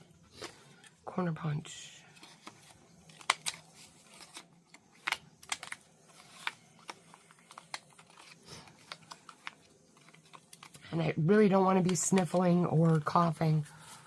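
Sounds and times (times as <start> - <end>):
paper crinkling: 2.1 - 11.0.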